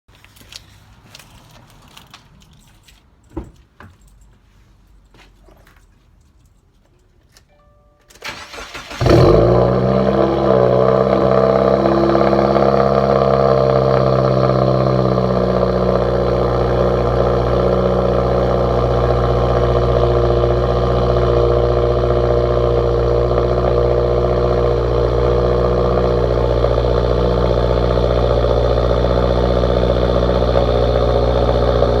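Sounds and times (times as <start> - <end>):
car engine fast idle: 8.2 - 32.0.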